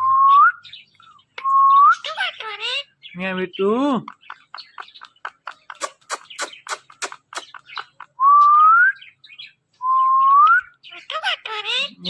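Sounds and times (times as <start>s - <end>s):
parrot clicking: 4.0s - 7.9s.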